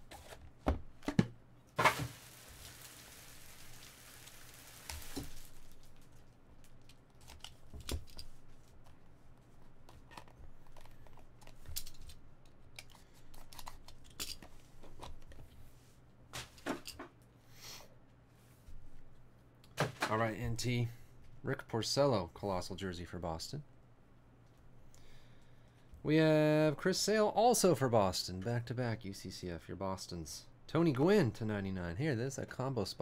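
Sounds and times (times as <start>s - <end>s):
packaging ripping and crinkling: 1.8s - 7.6s
cards and wrapping rustling: 1.8s - 12.2s.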